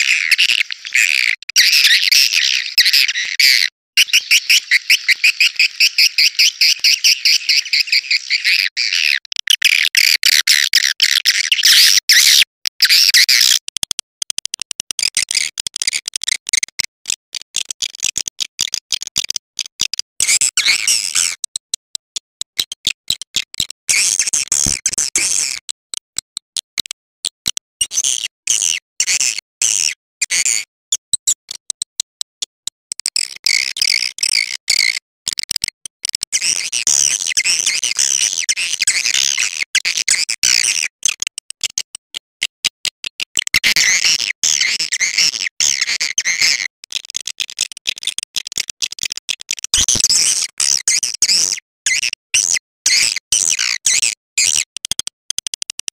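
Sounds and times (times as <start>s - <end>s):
swiftlets twittering chirps: 0.0s - 10.0s
rapid sharp clicks: 13.6s - 16.0s.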